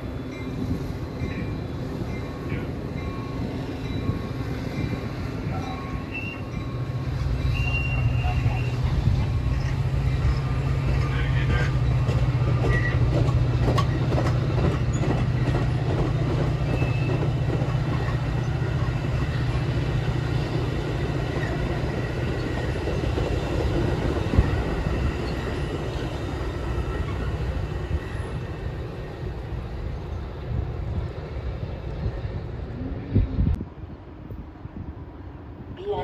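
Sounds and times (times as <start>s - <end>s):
train wheels clicking over rails: 9.0s - 28.8s.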